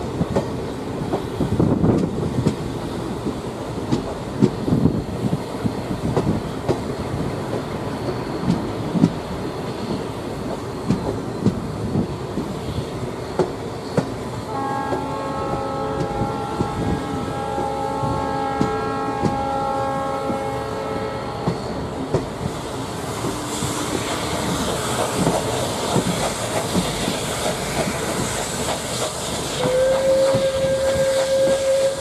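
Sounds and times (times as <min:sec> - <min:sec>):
train wheels clicking over rail joints: 0:00.0 - 0:14.3, 0:21.4 - 0:32.0
train horn: 0:14.5 - 0:21.8, 0:29.6 - 0:32.0.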